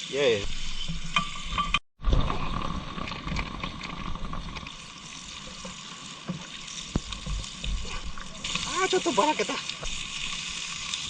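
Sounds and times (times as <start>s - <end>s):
meat sizzling on a grill: 4.7s - 11.0s.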